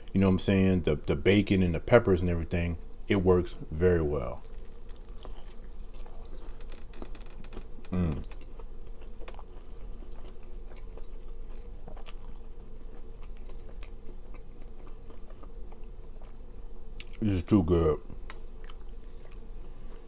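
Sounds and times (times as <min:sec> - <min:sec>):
low background hum: 0:00.0 - 0:20.0
chewing and biting food: 0:04.4 - 0:17.2, 0:18.2 - 0:20.0
low vocal hum: 0:07.8 - 0:08.5.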